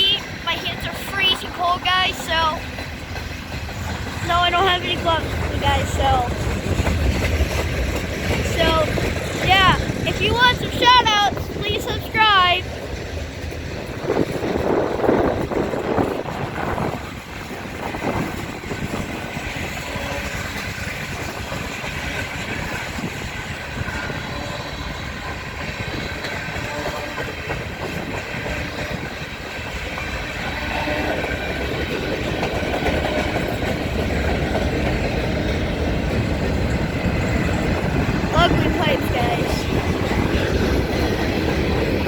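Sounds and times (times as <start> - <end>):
freight train cars rolling on rails: 0.0 - 42.0.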